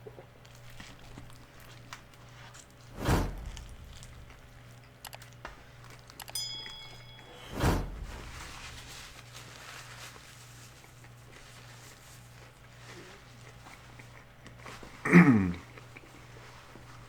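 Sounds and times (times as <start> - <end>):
loud sudden noise: 3.0 - 4.6
short ringing clink: 6.2 - 9.0
quiet chewing: 10.7 - 17.0.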